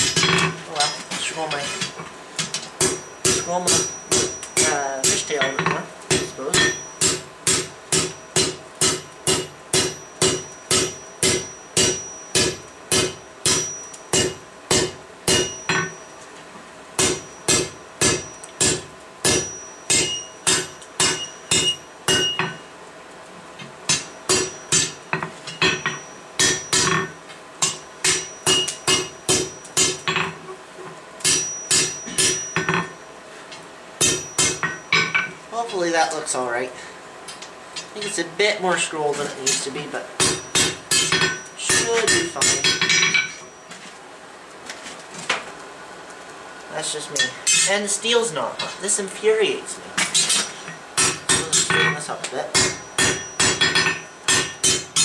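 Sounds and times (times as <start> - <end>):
hammer striking steel on anvil: 0.0 - 16.0, 17.0 - 22.6, 23.9 - 30.4, 31.2 - 33.0, 34.0 - 35.4, 39.4 - 43.5, 50.0 - 55.0.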